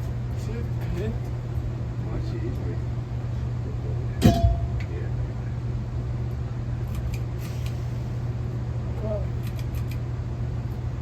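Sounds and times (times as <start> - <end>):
ceiling fan humming: 0.0 - 11.0.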